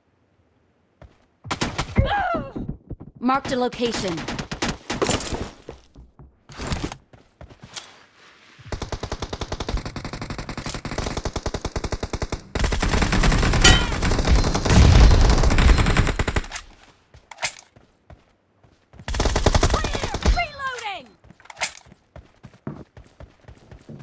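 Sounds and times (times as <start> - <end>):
video game automatic gunfire: 8.7 - 16.5.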